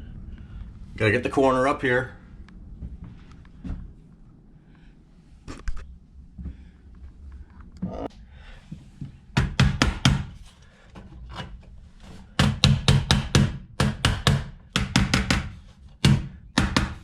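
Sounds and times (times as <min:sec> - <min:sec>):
sharp knocks on wood: 0:09.4 - 0:10.3, 0:12.4 - 0:17.0.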